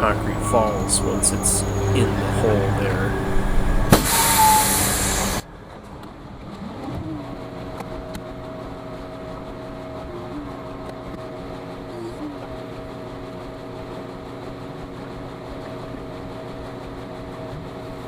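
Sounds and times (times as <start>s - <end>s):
diesel truck engine running: 0.0s - 5.4s.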